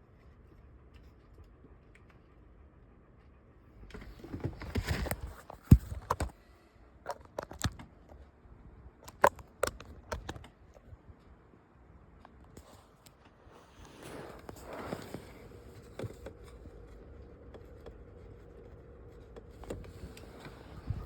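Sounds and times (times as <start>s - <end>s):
small clicks and knocks: 7.1s - 8.3s, 9.0s - 10.9s.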